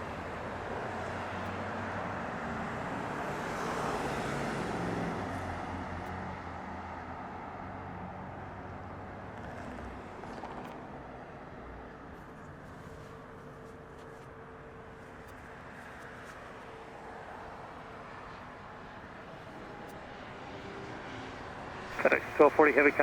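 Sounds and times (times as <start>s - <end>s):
jet airliner passing: 19.4s - 23.0s.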